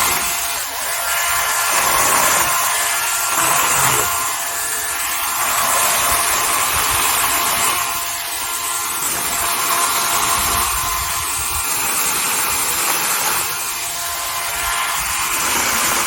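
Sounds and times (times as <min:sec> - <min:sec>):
chainsaw cutting into tree: 0:00.0 - 0:16.0.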